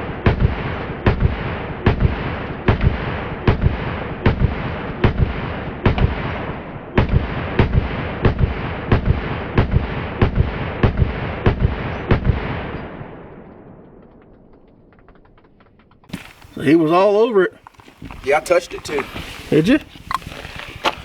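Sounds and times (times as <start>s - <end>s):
rumbling echo: 0.0s - 16.1s
rapid gunshots: 0.0s - 16.2s.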